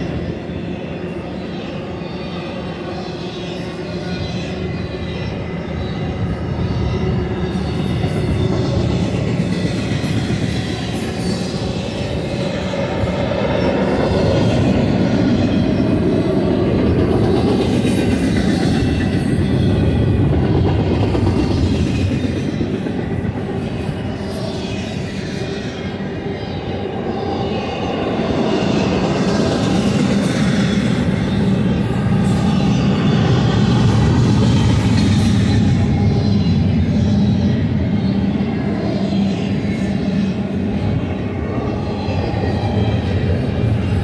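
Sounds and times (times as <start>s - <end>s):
steel wheels rumbling on rail: 0.0s - 44.0s
wheels clickety-clack: 7.6s - 24.9s.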